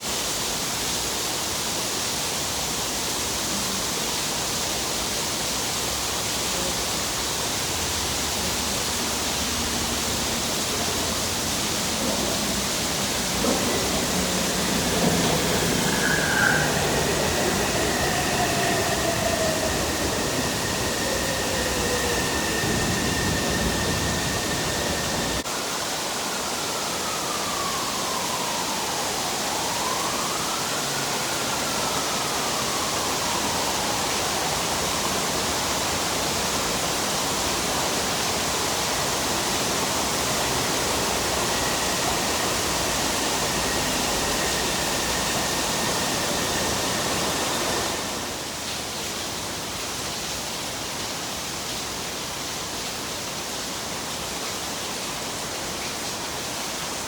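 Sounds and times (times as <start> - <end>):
heavy rain: 0.0 - 57.0
faint electric train motor whine: 7.8 - 25.4, 40.0 - 48.4.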